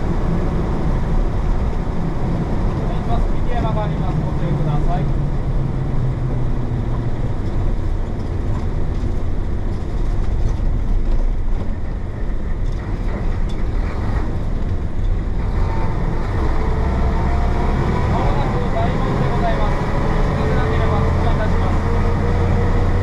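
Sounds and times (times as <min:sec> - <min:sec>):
bus diesel engine rumbling: 0:00.0 - 0:23.0.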